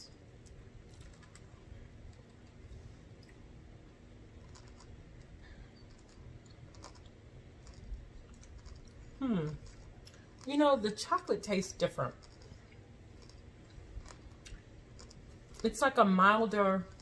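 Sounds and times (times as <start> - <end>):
low room noise: 0.0 - 17.0
person chewing: 5.8 - 10.5, 12.2 - 15.6.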